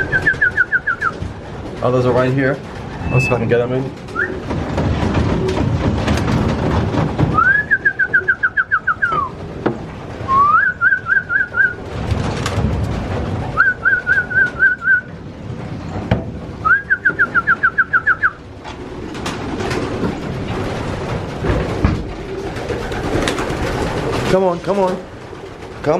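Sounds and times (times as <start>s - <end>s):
birds rustling: 0.0s - 25.9s
person whistling warbling calls: 7.4s - 9.3s, 10.3s - 11.8s.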